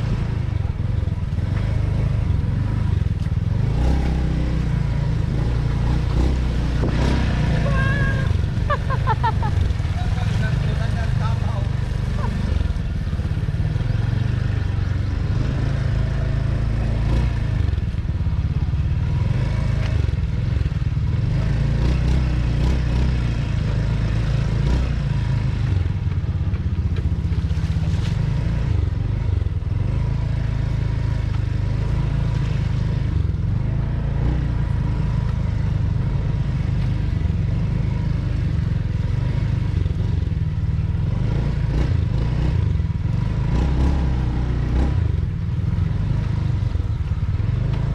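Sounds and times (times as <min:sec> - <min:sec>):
motorcycle engine rumbling: 0:00.0 - 0:47.9.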